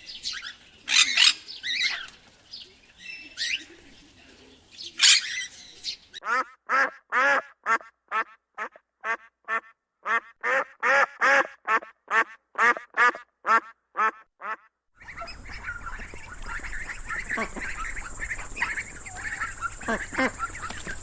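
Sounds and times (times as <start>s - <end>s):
steady hiss: 0.0s - 6.1s, 15.0s - 21.0s
duck quacking: 5.0s - 21.0s
faint short calls: 15.0s - 21.0s.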